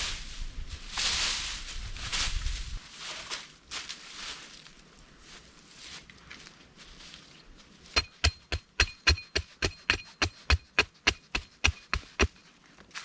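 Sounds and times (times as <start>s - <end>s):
hand tool chopping wood: 8.0s - 12.5s.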